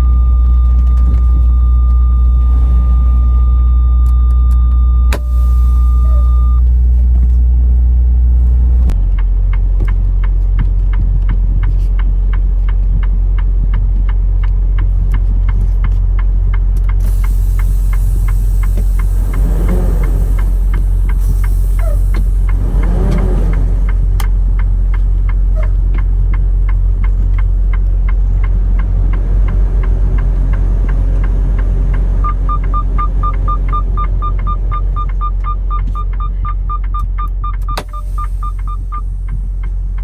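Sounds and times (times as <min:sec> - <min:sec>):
truck diesel engine rumble: 0:00.0 - 0:40.0
regular ticking: 0:12.0 - 0:40.0.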